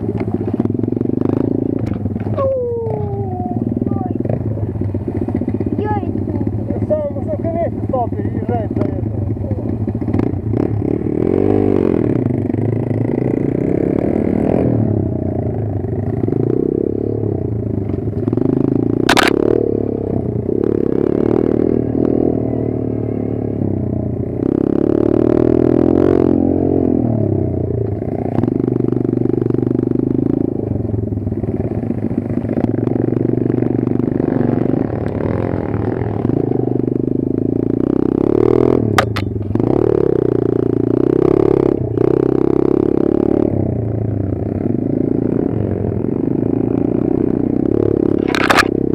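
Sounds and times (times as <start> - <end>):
motorbike engine revving: 0.0 - 48.9
sharp click: 19.1 - 19.4, 39.0 - 39.4, 48.2 - 48.7
bike clatter: 39.0 - 39.5.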